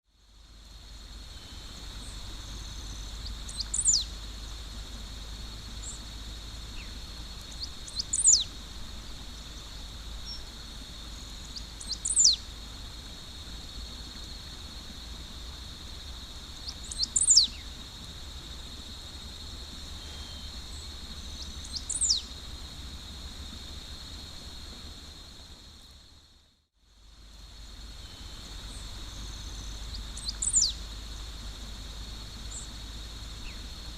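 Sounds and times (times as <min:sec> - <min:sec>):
bird singing downward phrase: 0:03.5 - 0:04.1, 0:07.6 - 0:08.5, 0:11.5 - 0:12.4, 0:21.6 - 0:22.3, 0:30.2 - 0:30.8.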